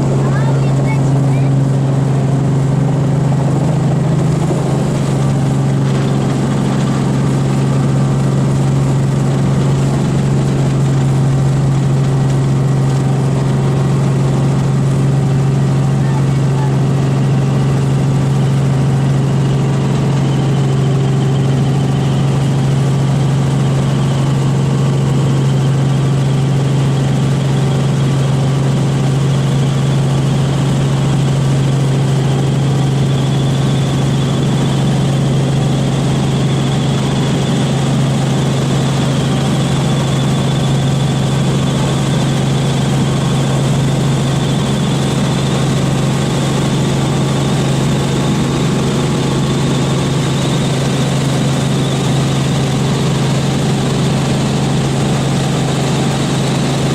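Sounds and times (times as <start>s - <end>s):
helicopter engine and rotors droning: 0.0s - 56.9s.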